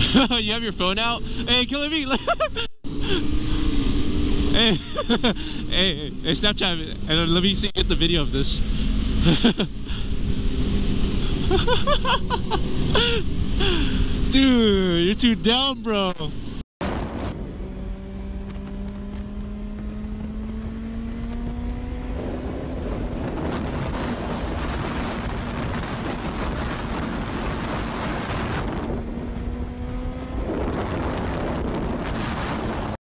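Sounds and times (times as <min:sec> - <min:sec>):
motorcycle engine accelerating: 0:02.8 - 0:06.4, 0:08.4 - 0:14.3, 0:16.3 - 0:33.0
wind rushing over microphone: 0:16.3 - 0:33.0.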